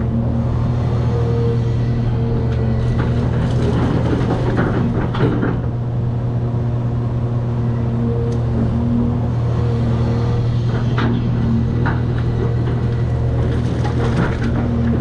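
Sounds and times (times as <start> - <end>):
excavator diesel engine running: 0.0 - 15.0
knocks and scraping: 10.6 - 15.0.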